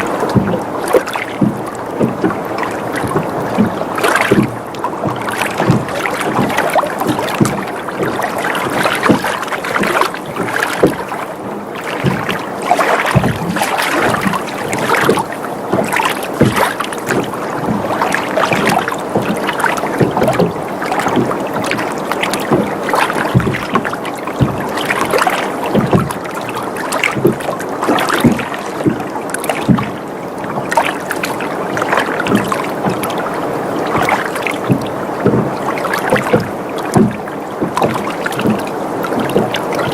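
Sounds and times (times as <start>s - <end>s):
water lapping against boat hull: 0.0s - 39.9s.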